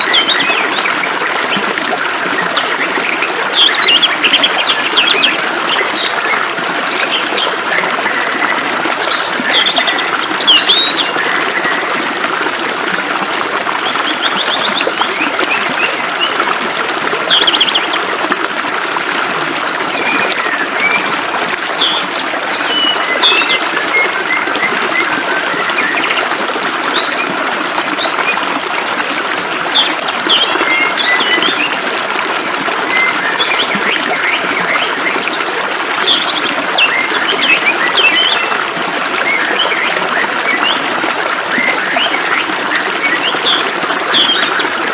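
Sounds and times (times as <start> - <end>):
birds chirping: 0.0 - 12.1, 19.6 - 27.3, 41.5 - 44.9.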